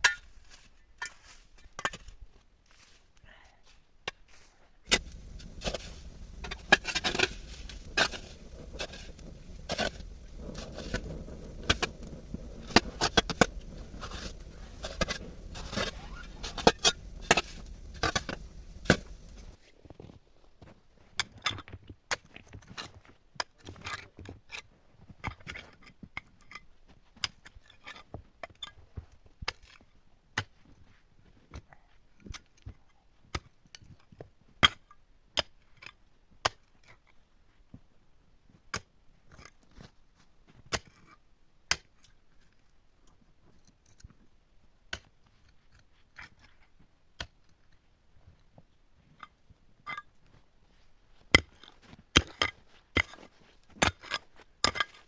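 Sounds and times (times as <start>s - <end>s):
low rumble: 4.9s - 19.6s.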